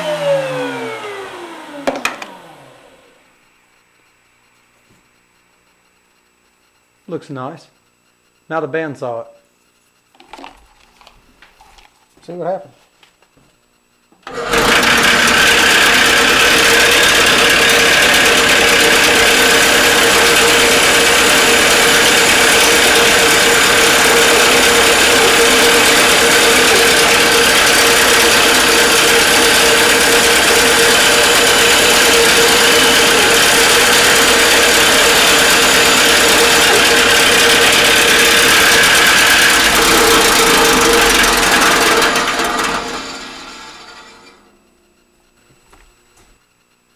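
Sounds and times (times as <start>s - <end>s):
bandsaw cutting wood: 0.0s - 3.1s, 14.2s - 44.5s.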